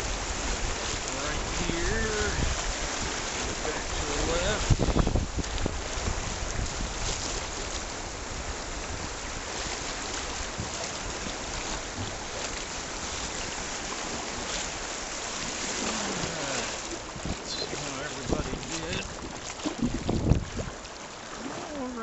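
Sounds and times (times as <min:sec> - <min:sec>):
river water rushing: 0:00.0 - 0:22.0
brief water splashes: 0:15.3 - 0:22.0.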